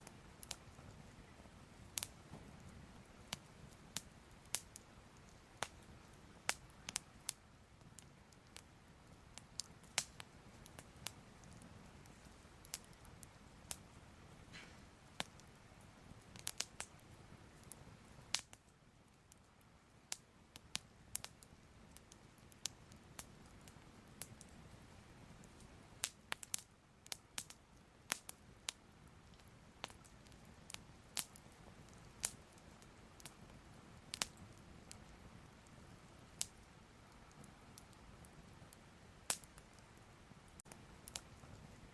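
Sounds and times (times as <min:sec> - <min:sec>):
fire crackling: 0:00.0 - 0:41.9
faint low rumble: 0:27.6 - 0:41.9.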